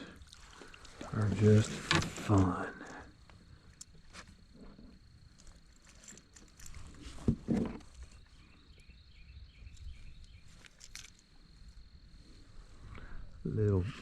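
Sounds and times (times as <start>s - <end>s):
handling clicks and rustles: 5.3s - 8.2s, 9.7s - 11.4s.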